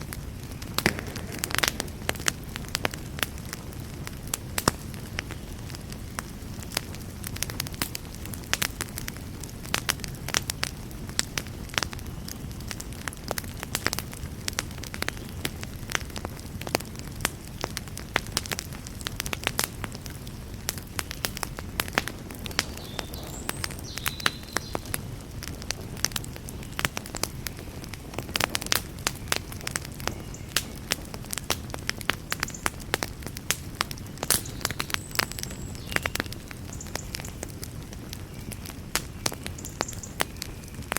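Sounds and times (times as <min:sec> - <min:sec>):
low rumble of flames: 0:00.0 - 0:40.9
wood fire crackling and popping: 0:00.0 - 0:40.9.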